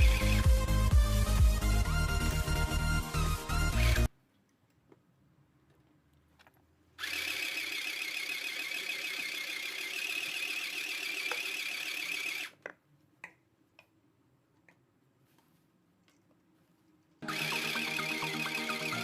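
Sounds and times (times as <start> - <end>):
sewing machine whirring: 0.0 - 0.6, 7.0 - 12.6, 17.2 - 19.0.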